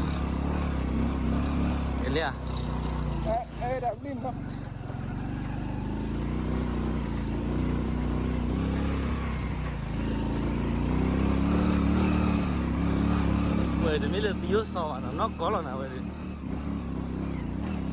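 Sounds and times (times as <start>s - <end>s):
motorcycle engine: 0.0s - 17.9s.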